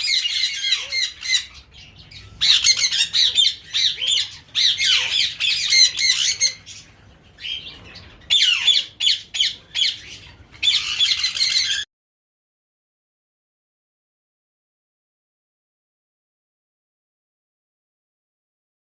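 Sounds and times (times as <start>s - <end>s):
caged birds squawking: 0.0s - 11.9s.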